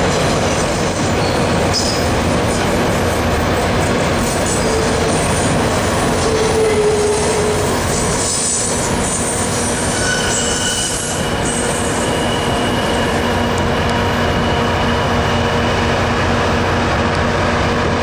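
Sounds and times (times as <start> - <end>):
freight train wheels rumbling: 0.0 - 18.0
thin wheel squeals: 8.3 - 15.6.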